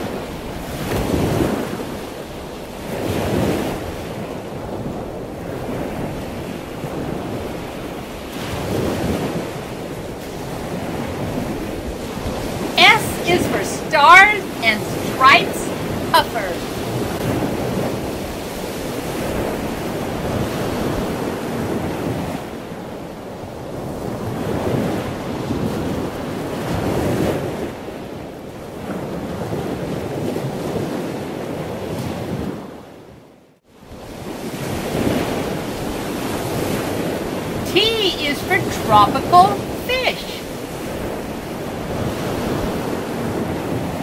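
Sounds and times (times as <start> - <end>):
ocean waves rushing: 5.3 - 22.9, 33.9 - 44.0.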